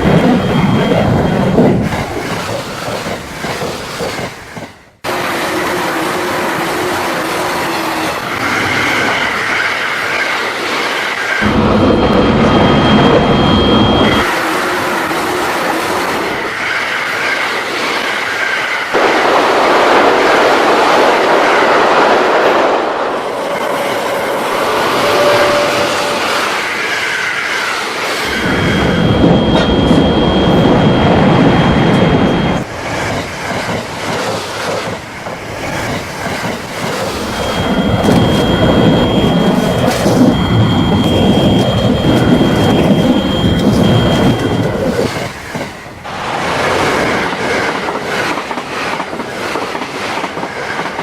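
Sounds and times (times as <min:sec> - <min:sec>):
train wheels clattering over rail joints: 0:00.0 - 0:05.0, 0:32.6 - 0:51.0
thin high whine: 0:11.4 - 0:15.4, 0:24.2 - 0:27.1, 0:28.2 - 0:32.8, 0:35.8 - 0:47.2
wheel squeal: 0:24.2 - 0:33.1, 0:35.5 - 0:46.0.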